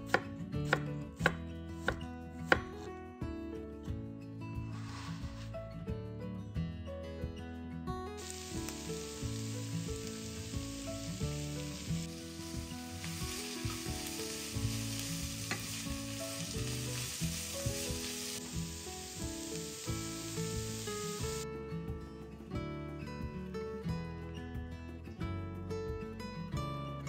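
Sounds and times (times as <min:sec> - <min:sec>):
guitar music: 0:00.0 - 0:27.0
food sizzling in oil: 0:08.2 - 0:21.4.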